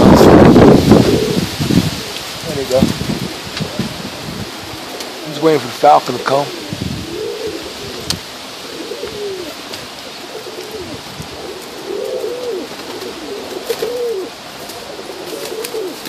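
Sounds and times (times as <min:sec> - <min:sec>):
wind noise: 0:00.0 - 0:05.8, 0:06.5 - 0:08.3, 0:10.6 - 0:11.6
pigeons cooing: 0:00.0 - 0:16.0.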